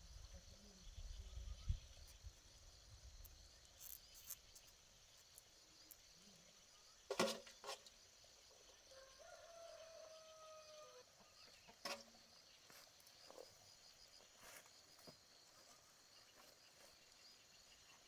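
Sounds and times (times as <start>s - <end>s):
faint insect drone: 0.0s - 18.0s
rooster crowing: 8.9s - 11.1s.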